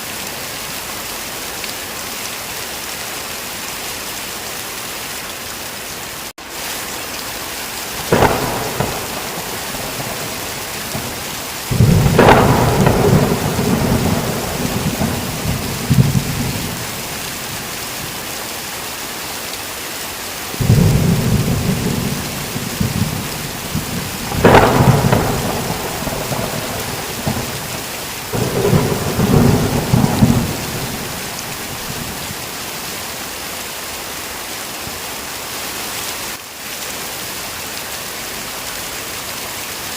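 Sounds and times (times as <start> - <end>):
heavy rain: 0.0 - 39.9
thunder crack: 8.0 - 17.7, 20.6 - 32.4
rolling thunder rumbles: 8.0 - 18.2, 20.6 - 32.5.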